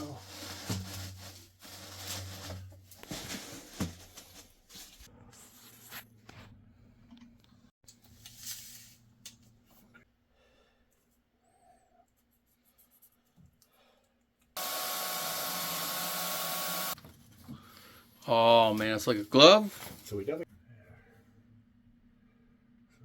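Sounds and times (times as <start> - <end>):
power tool running: 14.6 - 17.0.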